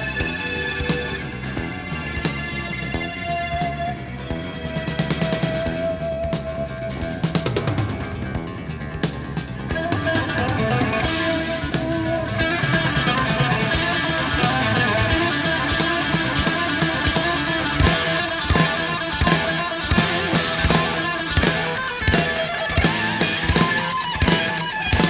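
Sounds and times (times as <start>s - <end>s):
bass guitar: 0.0s - 25.0s
drum kit: 0.0s - 25.0s
electric guitar: 0.0s - 25.0s.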